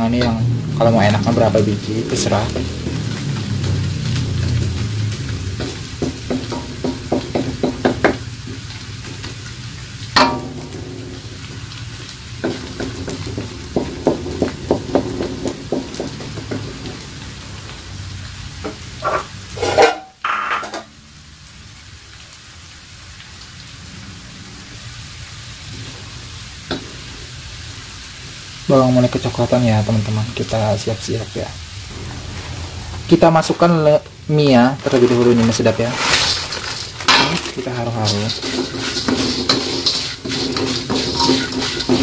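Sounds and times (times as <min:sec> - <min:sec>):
shallots sizzling in oil: 0:00.0 - 0:42.0
wooden spatula tapping a wok: 0:05.6 - 0:09.3, 0:12.4 - 0:17.1.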